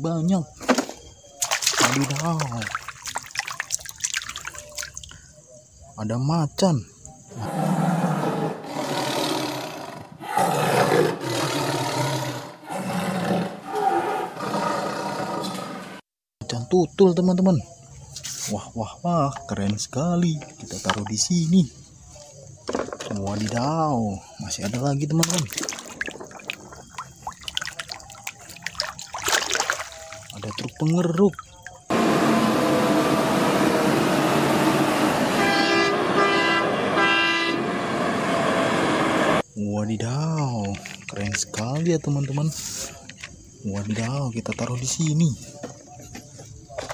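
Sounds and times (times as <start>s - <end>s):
big cat growling: 7.3s - 16.0s
vehicle horn blasts: 34.9s - 39.2s.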